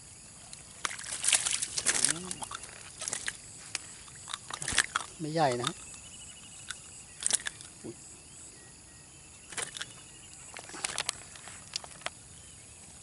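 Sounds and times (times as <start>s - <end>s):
insect buzz: 0.0s - 13.0s
handling clicks and rustles: 9.5s - 12.2s.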